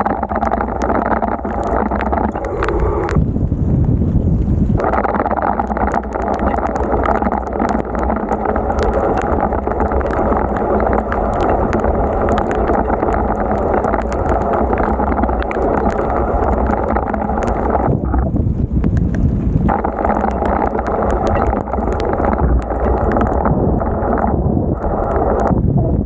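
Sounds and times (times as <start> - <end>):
raindrops clicking on camera: 0.0 - 26.0
wind and rain on microphone: 0.0 - 26.0.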